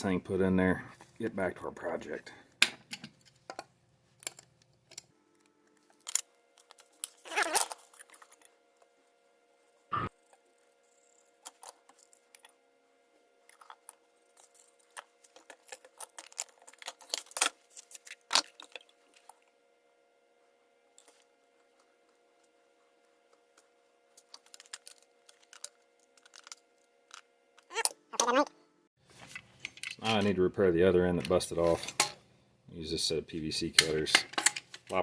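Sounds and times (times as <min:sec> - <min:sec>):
faint steady hum: 0:00.0 - 0:35.0
pipe fittings clicking and scraping: 0:13.5 - 0:19.4, 0:24.2 - 0:27.2.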